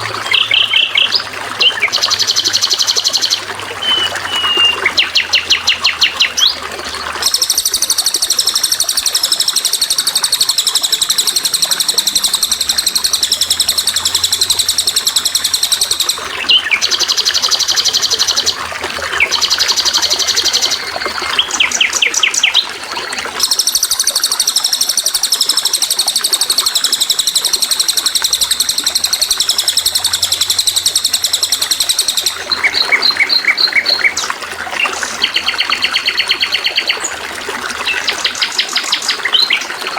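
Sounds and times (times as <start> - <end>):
songbird trilling: 0.0 - 22.8, 23.4 - 37.1, 37.8 - 39.9.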